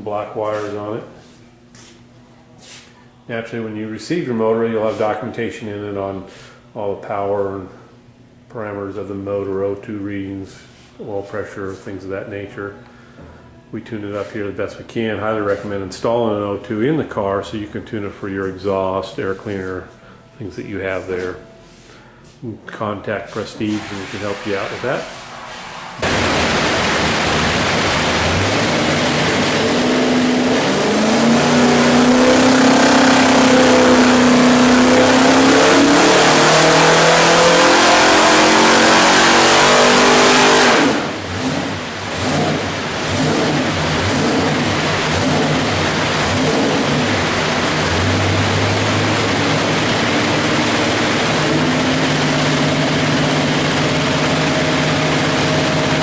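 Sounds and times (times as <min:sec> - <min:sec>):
car engine revving: 0:23.7 - 0:56.0.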